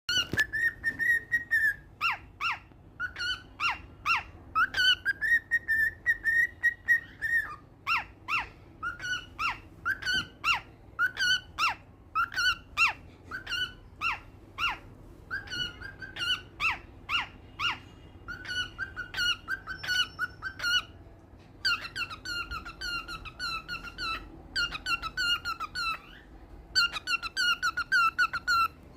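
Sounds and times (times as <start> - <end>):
cockatiel whistling: 0.1 - 21.0, 21.6 - 28.8.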